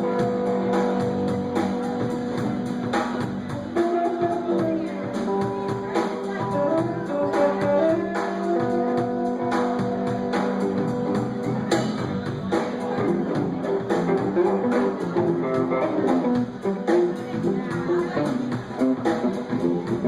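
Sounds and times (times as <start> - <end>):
bass guitar: 0.0 - 20.0
electric guitars: 0.0 - 20.0
steady drum beat: 0.0 - 20.0.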